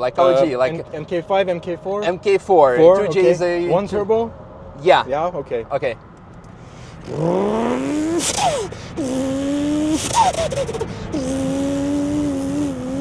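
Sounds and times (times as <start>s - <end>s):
man imitating engine with mouth: 6.7s - 13.0s.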